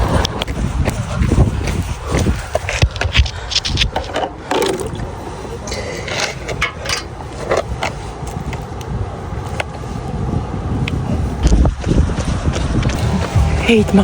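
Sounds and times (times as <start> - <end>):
wind rumble on microphone: 0.0 - 14.0
handling noise rustling and scraping: 0.5 - 8.7.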